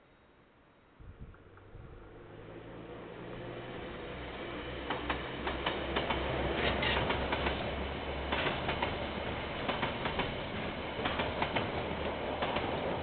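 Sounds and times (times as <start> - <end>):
train low rumble: 1.0 - 13.0
train wheels clicking and clattering: 4.8 - 13.0.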